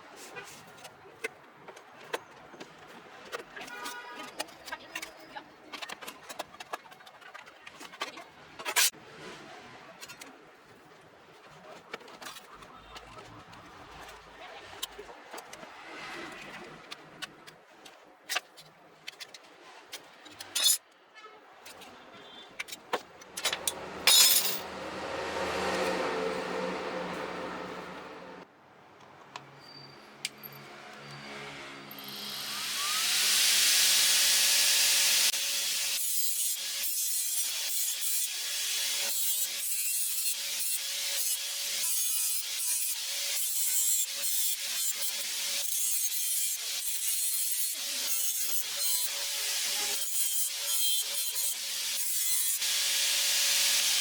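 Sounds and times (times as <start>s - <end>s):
hand tool rasping strokes: 31.9s - 54.0s.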